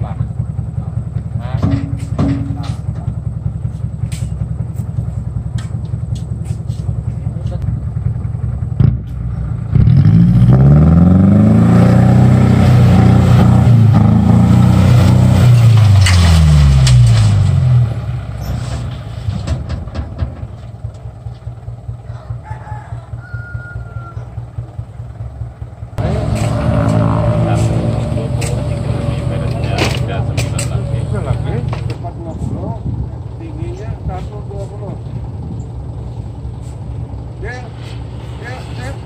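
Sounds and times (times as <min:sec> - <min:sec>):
truck engine revving and idling: 0:00.0 - 0:39.0.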